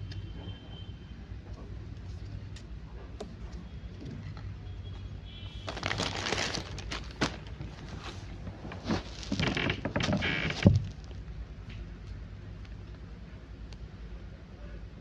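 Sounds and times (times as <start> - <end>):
rustling handling noise: 5.4 - 11.2.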